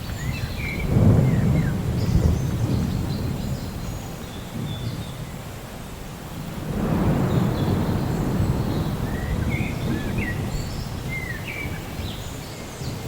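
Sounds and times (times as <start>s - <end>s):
rolling thunder: 0.0s - 5.4s, 6.4s - 13.0s
small birds chirping: 0.0s - 5.4s, 7.1s - 13.0s.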